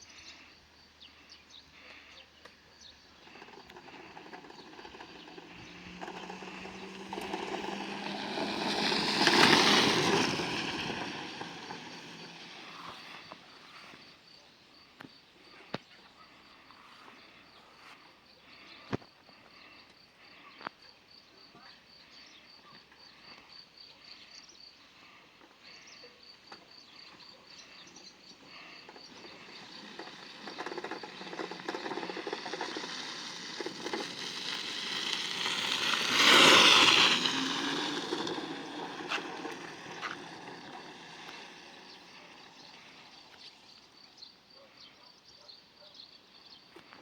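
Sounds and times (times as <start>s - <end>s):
electric motorcycle passing by: 0.0s - 14.3s, 24.1s - 44.9s
crickets chirping: 0.0s - 47.0s.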